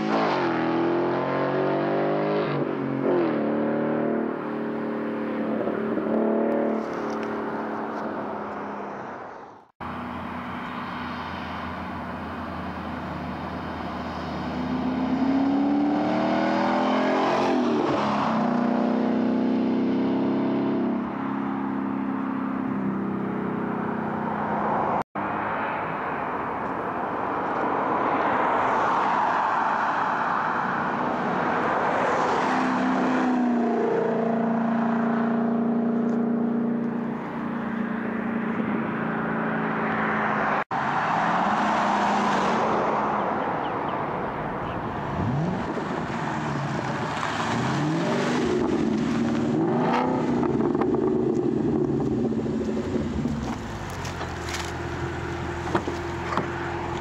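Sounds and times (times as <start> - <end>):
car engine revving: 9.8 - 22.5, 45.0 - 57.0.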